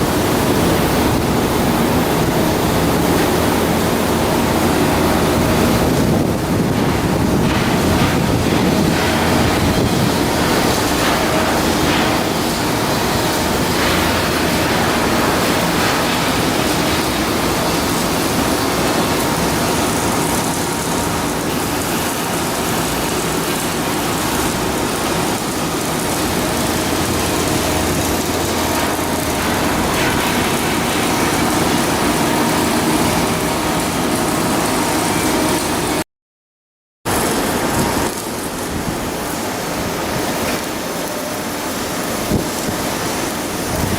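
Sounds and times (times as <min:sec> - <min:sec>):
loud machinery hum: 0:00.0 - 0:36.0, 0:37.1 - 0:43.9.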